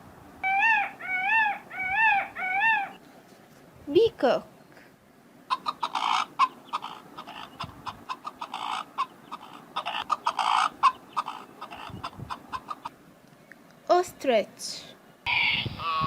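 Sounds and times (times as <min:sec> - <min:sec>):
peacock calling: 0:00.4 - 0:03.0, 0:05.5 - 0:13.0, 0:15.3 - 0:16.0.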